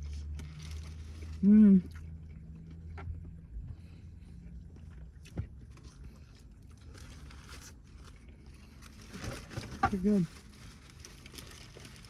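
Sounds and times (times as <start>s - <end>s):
person chewing food: 0.0s - 8.9s.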